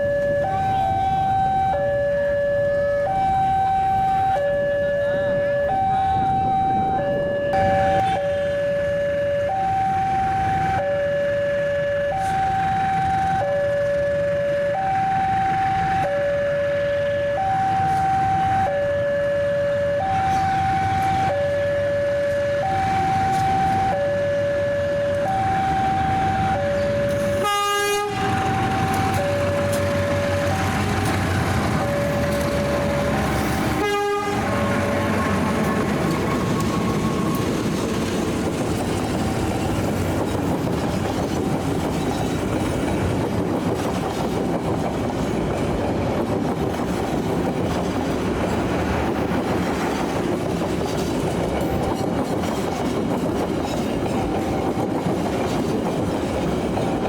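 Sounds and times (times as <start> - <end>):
two-tone crossing alarm: 0.0 - 42.0
train wheels clattering on rail: 28.1 - 57.0.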